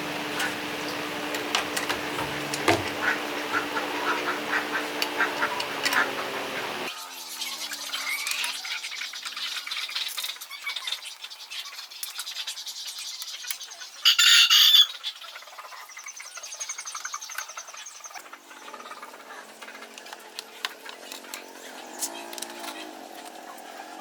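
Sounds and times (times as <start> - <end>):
bird squawk: 2.9 - 6.8, 14.0 - 15.2.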